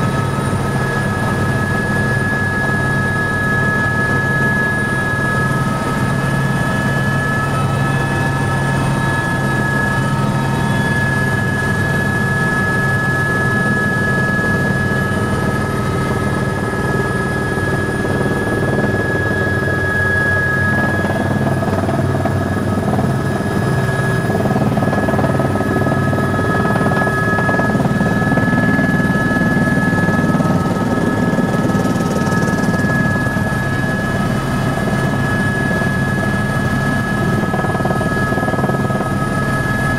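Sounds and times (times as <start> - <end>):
helicopter engine and rotor drone: 0.0 - 39.9
high steady whine: 0.0 - 39.9.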